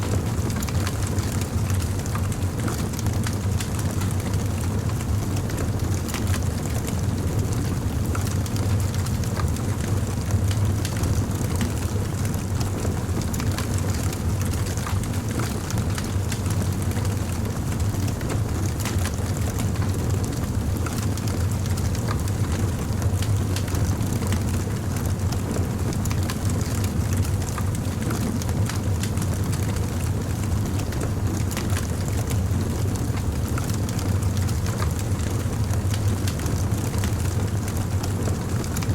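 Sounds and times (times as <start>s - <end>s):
fire crackling and popping: 0.2s - 4.8s, 13.4s - 38.9s.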